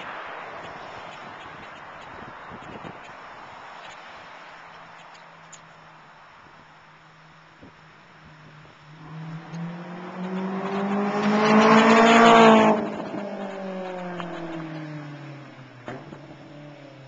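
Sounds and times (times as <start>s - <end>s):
car exhaust accelerating hard: 7.7s - 17.0s.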